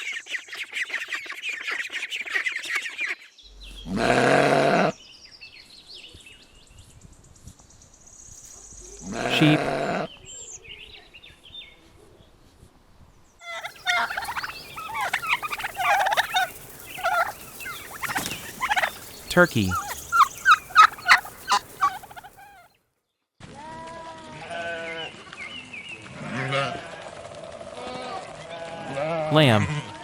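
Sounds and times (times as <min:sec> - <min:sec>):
turkey gobbling: 0:13.4 - 0:22.7.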